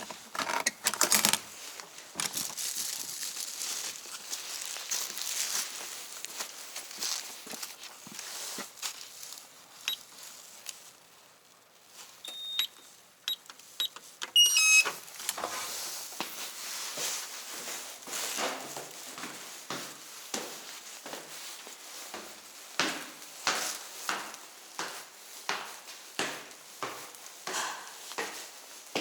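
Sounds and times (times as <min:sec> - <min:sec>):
rustling: 0:01.0 - 0:12.3
footsteps: 0:01.6 - 0:09.5, 0:15.2 - 0:29.0
electronic keypad beeping: 0:12.2 - 0:15.0.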